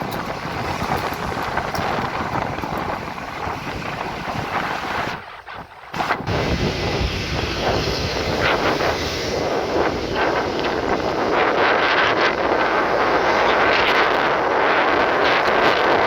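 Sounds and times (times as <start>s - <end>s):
locomotive engines running: 0.0s - 5.2s
wind buffeting microphone: 0.0s - 16.0s.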